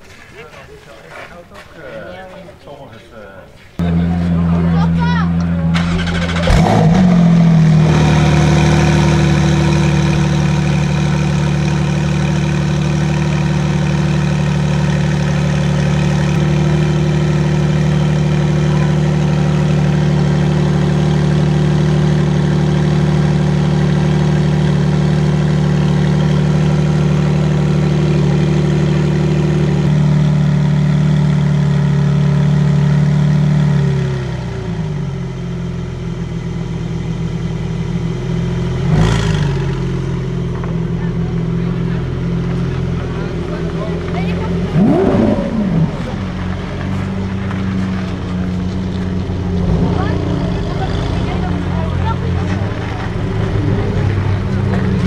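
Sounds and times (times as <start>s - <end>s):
car engine idling: 3.8s - 55.0s.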